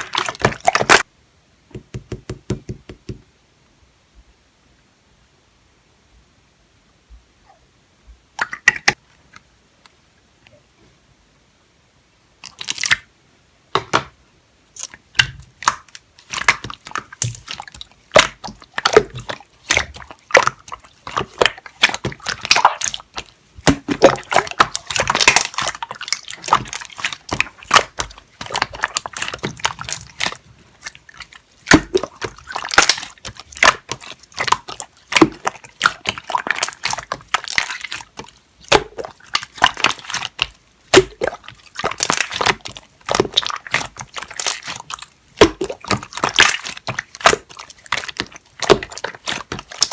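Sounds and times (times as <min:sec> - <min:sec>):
slime squishing with wet clicks: 0:00.0 - 0:01.1, 0:08.4 - 0:09.0, 0:12.4 - 0:13.1, 0:14.8 - 0:49.9.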